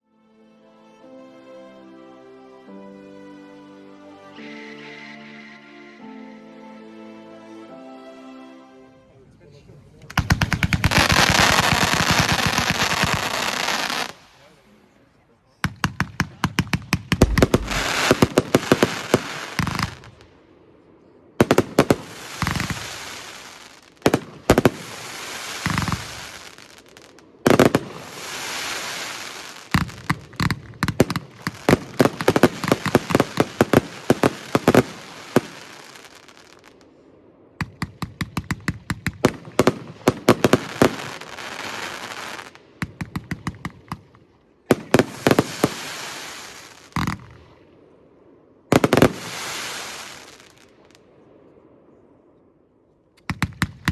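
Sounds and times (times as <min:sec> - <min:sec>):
firework launch thumps: 0:16.9 - 0:19.3
aerial bursts with crackling tails: 0:17.1 - 0:20.8, 0:21.5 - 0:44.1.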